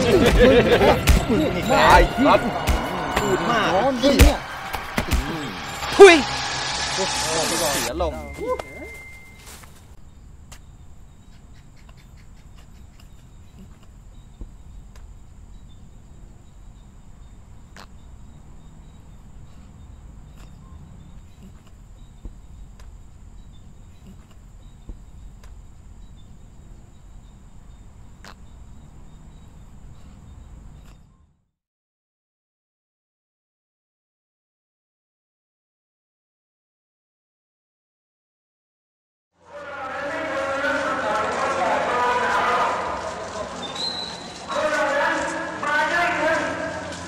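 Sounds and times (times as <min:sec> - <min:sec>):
crickets trilling: 0:05.2 - 0:31.1.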